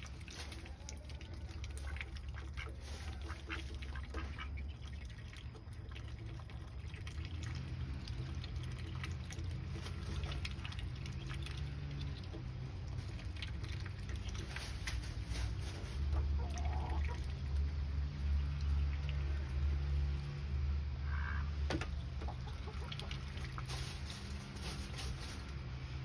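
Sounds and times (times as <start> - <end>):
ducks quacking: 1.4 - 5.1, 13.0 - 20.0, 21.0 - 24.9.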